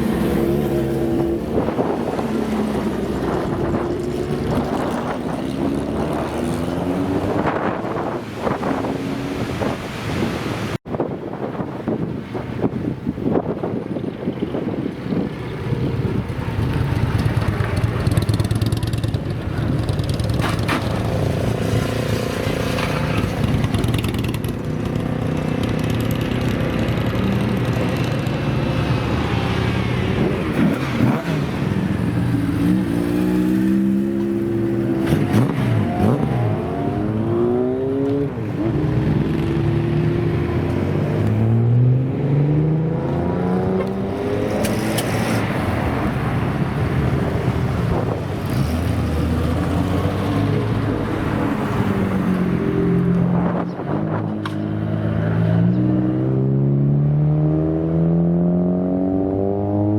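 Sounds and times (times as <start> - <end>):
motorcycle engines running: 0.0 - 9.8, 13.2 - 42.2.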